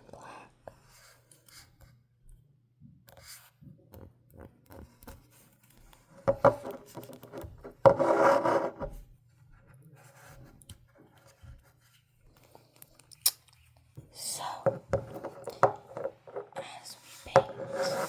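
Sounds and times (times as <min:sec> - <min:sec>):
light taps and rubs: 0:14.6 - 0:18.0.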